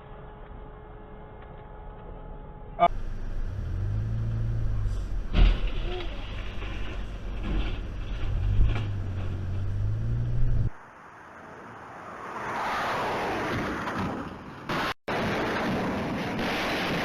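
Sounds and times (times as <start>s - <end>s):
vehicle engine drone: 0.0s - 12.4s
road noise: 2.7s - 17.0s.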